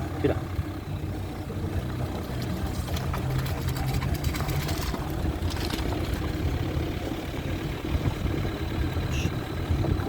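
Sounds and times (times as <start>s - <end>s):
vehicle engine idling: 0.0s - 10.0s
floodwater running: 1.4s - 8.1s.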